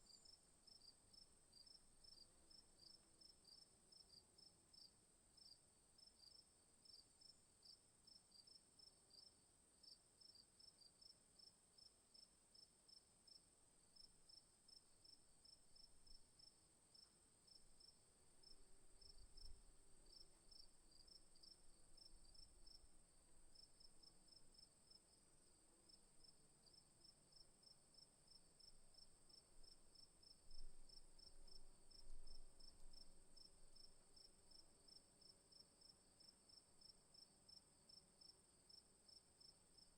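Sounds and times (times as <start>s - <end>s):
crickets chirping: 14.0s - 39.9s.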